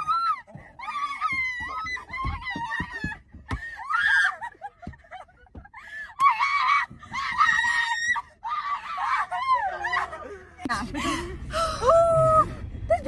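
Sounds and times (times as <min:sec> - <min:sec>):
woman screaming: 0:06.2 - 0:10.4, 0:11.5 - 0:13.0.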